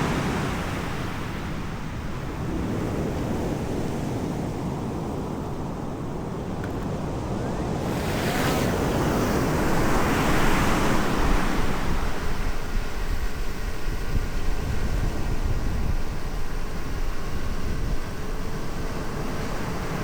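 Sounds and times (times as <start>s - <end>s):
wind buffeting microphone: 1.9s - 20.0s
ocean waves breaking: 6.7s - 12.2s.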